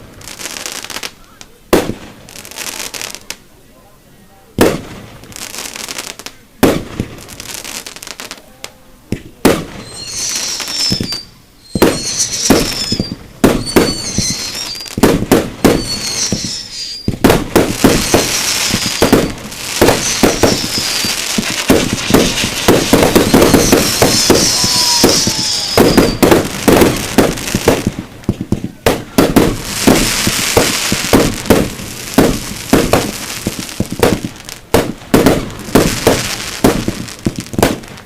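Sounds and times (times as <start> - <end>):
fireworks crackle: 0.0 - 3.5, 4.6 - 38.0
high falling whistles: 9.8 - 15.0, 15.7 - 17.2, 19.8 - 21.2, 22.2 - 26.3
firework shell bangs: 10.8 - 33.1.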